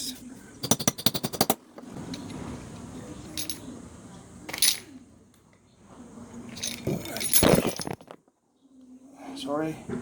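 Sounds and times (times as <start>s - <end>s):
tools clattering: 3.3s - 3.7s, 4.5s - 4.9s, 6.5s - 8.3s.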